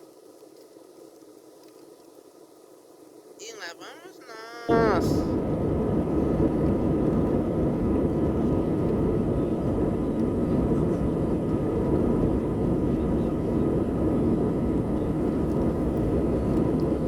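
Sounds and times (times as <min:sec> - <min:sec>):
faint steady whine: 0:00.0 - 0:17.0
jet engine rumble: 0:04.7 - 0:17.0.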